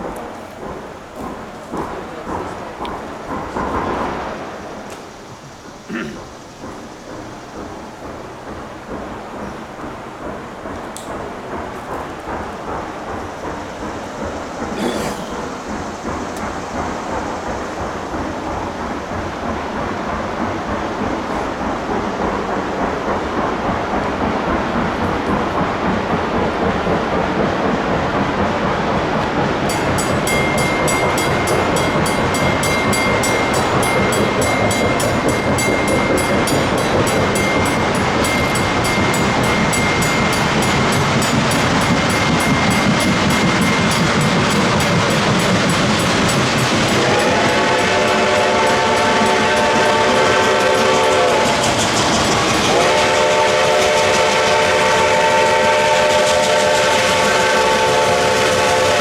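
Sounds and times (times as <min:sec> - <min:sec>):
steam locomotive passing: 0:00.0 - 0:59.0
locomotive bell ringing: 0:29.6 - 0:59.0
steam whistle chord: 0:46.9 - 0:51.7, 0:52.7 - 0:59.0.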